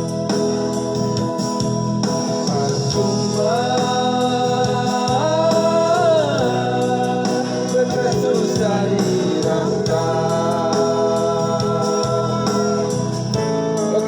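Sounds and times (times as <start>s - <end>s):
gliding held melody line: 0.0s - 14.0s
organ-toned keyboard music: 0.0s - 14.0s.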